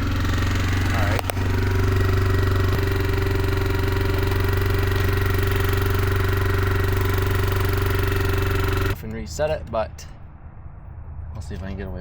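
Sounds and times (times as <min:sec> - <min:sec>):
engine fast idle: 0:00.0 - 0:09.0.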